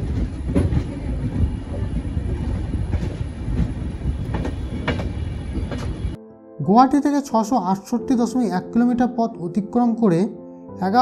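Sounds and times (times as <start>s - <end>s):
train rumbling on track: 0.0s - 6.2s
wheels clacking over rail joints: 0.0s - 6.2s.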